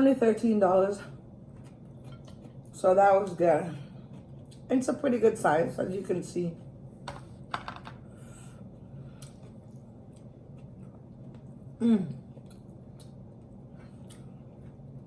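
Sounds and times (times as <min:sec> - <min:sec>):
person humming mm: 0:11.8 - 0:12.2
wet chewing: 0:12.3 - 0:14.8.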